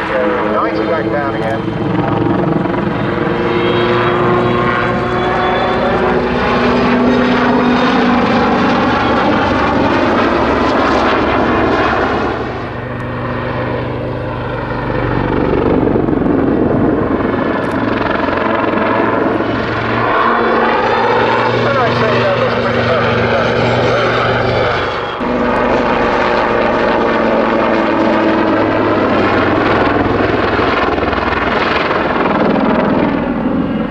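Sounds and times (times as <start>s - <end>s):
helicopter rotors and engines: 0.0s - 33.9s.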